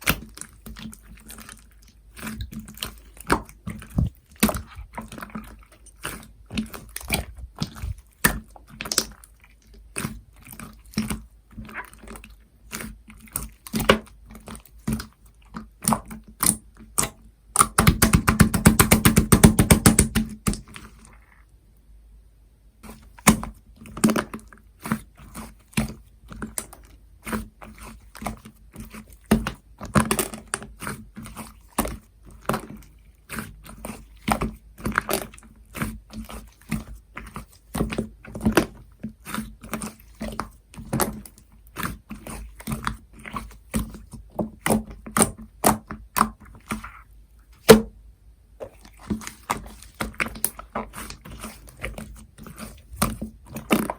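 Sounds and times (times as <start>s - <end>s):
slime squished by hand: 0.0s - 21.5s, 22.8s - 48.0s, 48.6s - 53.9s.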